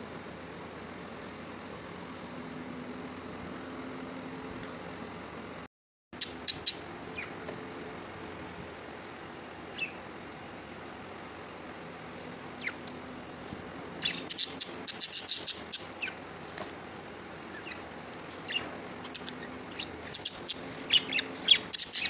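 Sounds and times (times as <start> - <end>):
budgerigars chirping: 6.2 - 7.4, 9.7 - 10.0, 12.6 - 12.8, 14.0 - 16.2, 17.5 - 17.8, 18.4 - 22.0.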